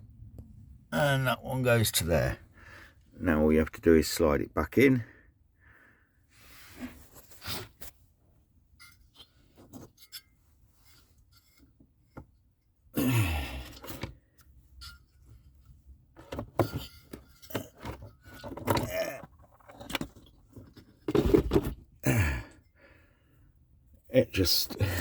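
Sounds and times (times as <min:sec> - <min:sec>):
man grunting: 0:13.0 - 0:13.7, 0:22.0 - 0:22.6
metal parts scraping and clinking: 0:16.5 - 0:21.6.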